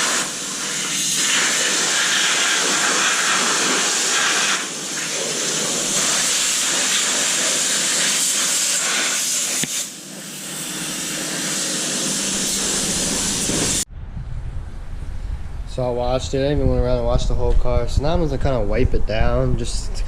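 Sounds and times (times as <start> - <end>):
hose spraying water onto engine: 0.0 - 13.8.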